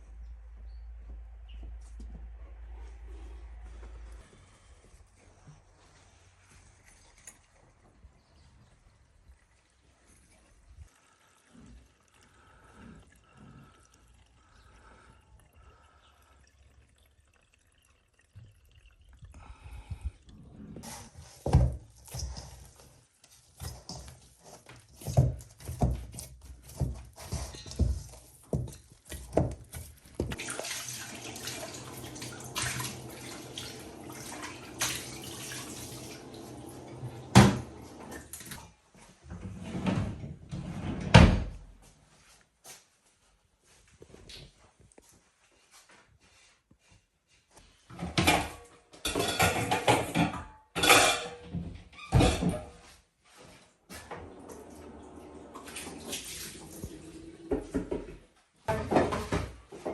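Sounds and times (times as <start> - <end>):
tap water running: 6.8 - 26.0, 26.7 - 38.6, 54.1 - 58.1
dishes and utensils clattering: 48.0 - 52.8.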